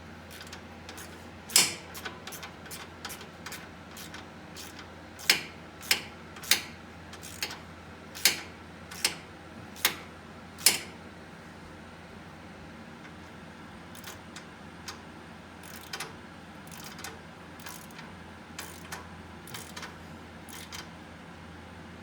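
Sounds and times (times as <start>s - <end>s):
hand ratchet clicking: 0.3s - 7.6s, 8.2s - 9.2s, 14.0s - 14.2s, 15.6s - 16.1s, 16.7s - 18.0s, 18.6s - 20.9s.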